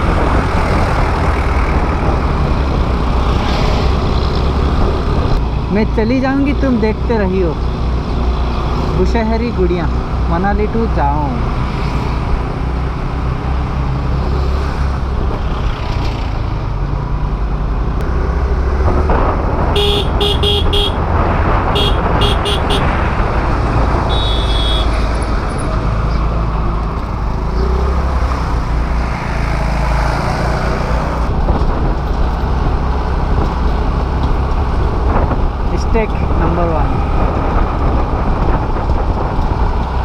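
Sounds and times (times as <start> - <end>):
vehicle horn short beeps: 19.8 - 21.0, 21.8 - 22.9, 24.1 - 25.0.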